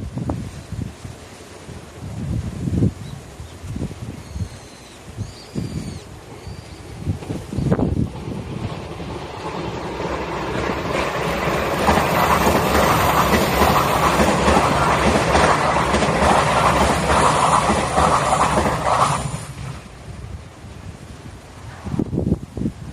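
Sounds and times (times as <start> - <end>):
electric train passing at speed: 5.8 - 22.4.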